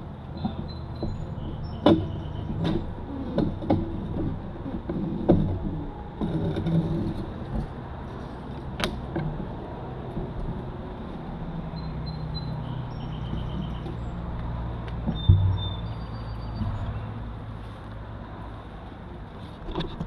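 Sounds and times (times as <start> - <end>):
thump: 15.1 - 15.9.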